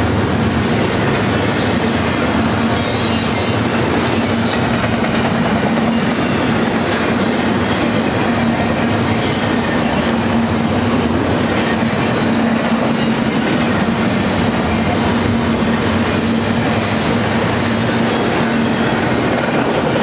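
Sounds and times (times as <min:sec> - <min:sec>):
freight train wheels rumbling: 0:00.0 - 0:20.0.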